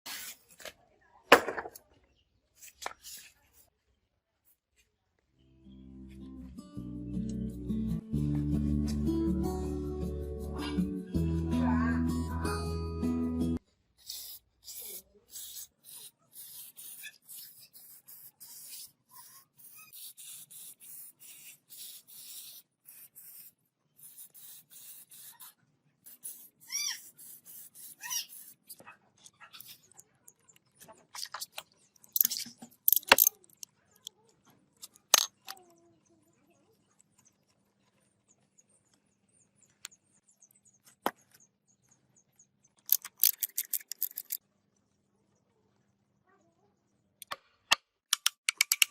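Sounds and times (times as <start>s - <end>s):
metallic clicks and knocks: 42.8s - 44.4s.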